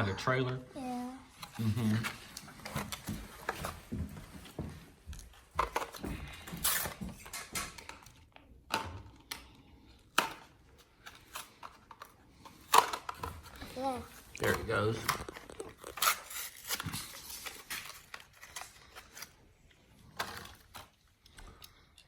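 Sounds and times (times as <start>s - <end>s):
plastic packaging crackling: 12.6s - 21.3s.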